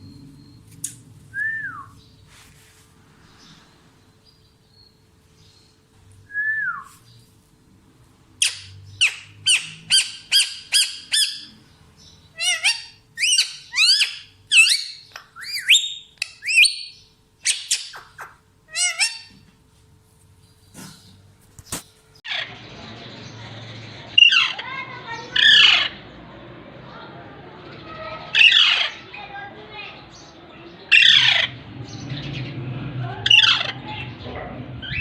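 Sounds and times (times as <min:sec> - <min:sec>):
parrot sharp rapid calls: 0:08.4 - 0:11.5, 0:12.4 - 0:19.3, 0:24.2 - 0:26.0, 0:28.2 - 0:29.1, 0:30.9 - 0:31.6, 0:33.2 - 0:34.0
parrot whistle: 0:12.4 - 0:19.3.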